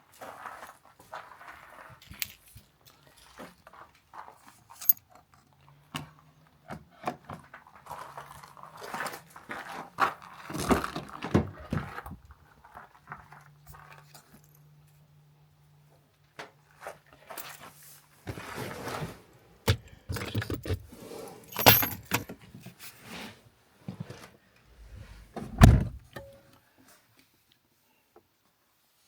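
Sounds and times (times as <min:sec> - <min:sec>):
objects clicking and clattering: 0:21.5 - 0:22.3.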